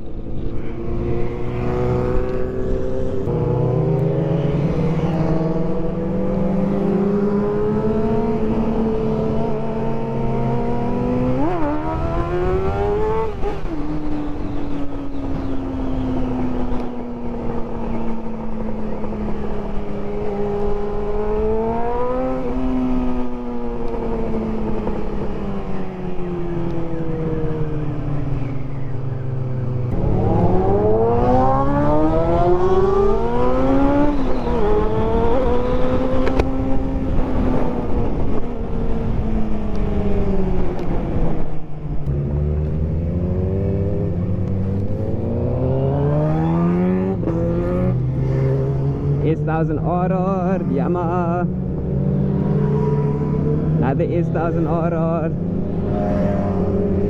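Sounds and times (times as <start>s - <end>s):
motorcycle engine revving: 0.1s - 14.5s, 29.4s - 57.0s.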